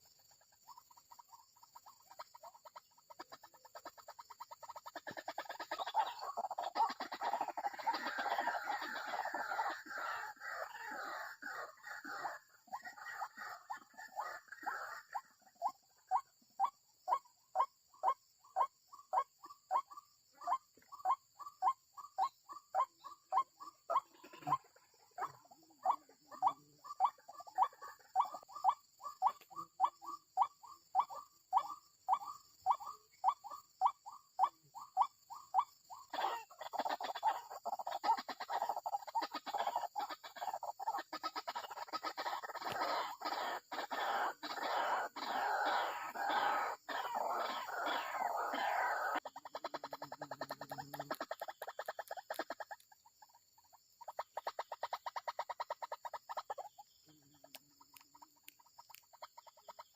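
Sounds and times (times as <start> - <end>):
waterhen calls: 0.7 - 59.9.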